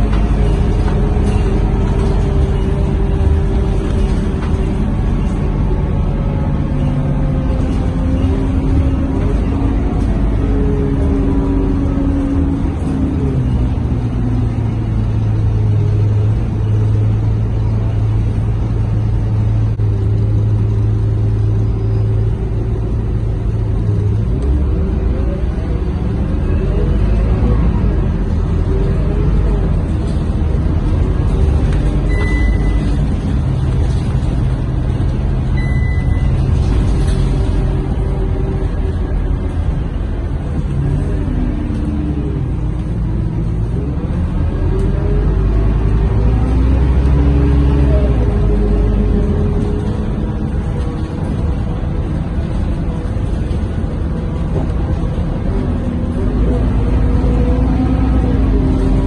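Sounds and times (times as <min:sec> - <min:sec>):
bus diesel engine running: 0:00.0 - 0:59.0
short high beeps: 0:32.1 - 0:32.8, 0:35.6 - 0:36.4.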